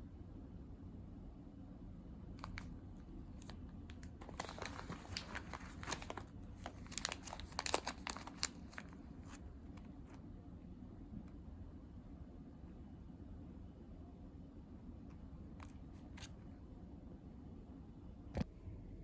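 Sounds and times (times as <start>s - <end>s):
bag crinkling and rustling: 3.3s - 9.4s.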